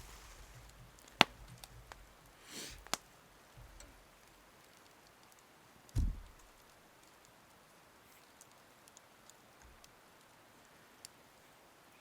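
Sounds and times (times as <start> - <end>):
brief hiss: 0.0 - 0.7, 2.4 - 3.0
light ticks: 0.1 - 12.0
dull low thump: 6.0 - 6.4.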